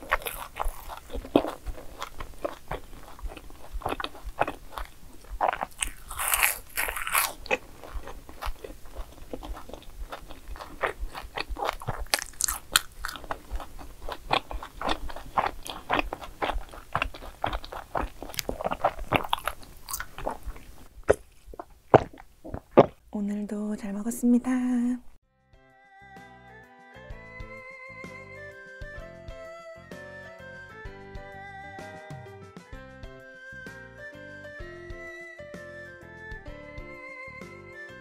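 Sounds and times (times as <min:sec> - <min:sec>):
chewing crisp snack: 0:00.0 - 0:23.1.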